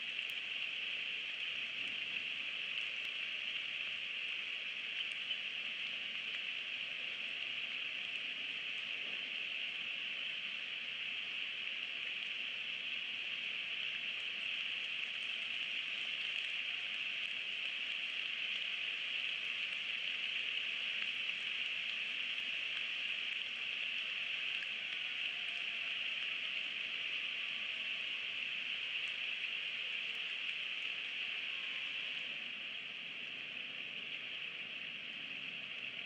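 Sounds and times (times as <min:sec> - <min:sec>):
faint raindrop ticks: 0:00.0 - 0:36.0
rain falling on trees: 0:00.0 - 0:36.0.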